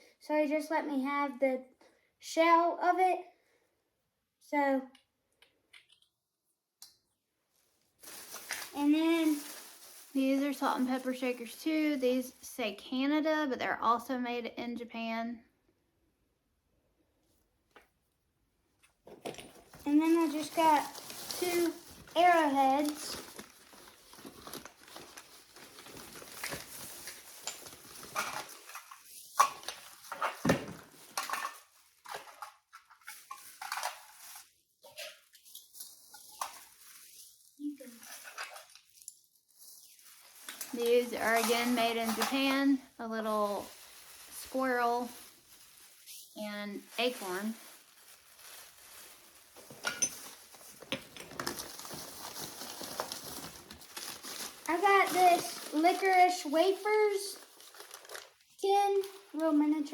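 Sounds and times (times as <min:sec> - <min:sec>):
small objects knocking and clinking: 0:49.6 - 0:52.1.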